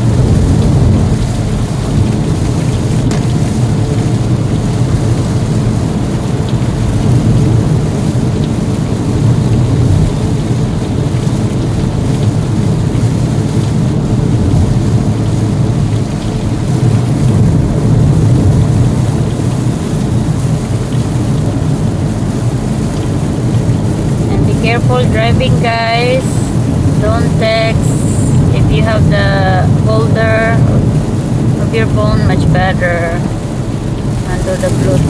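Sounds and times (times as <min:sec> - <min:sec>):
heavy rain on a car: 0:00.0 - 0:35.0
road noise: 0:00.0 - 0:35.0.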